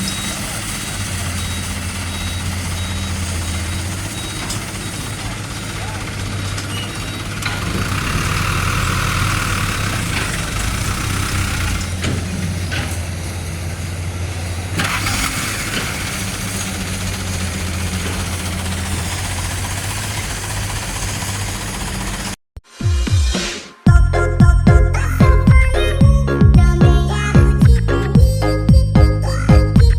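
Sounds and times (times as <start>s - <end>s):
diesel truck engine idling: 0.0s - 22.4s.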